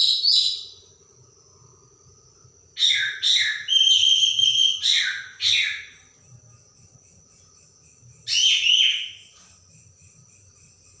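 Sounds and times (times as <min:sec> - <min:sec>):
thrush singing whistled phrases: 0:02.8 - 0:05.8.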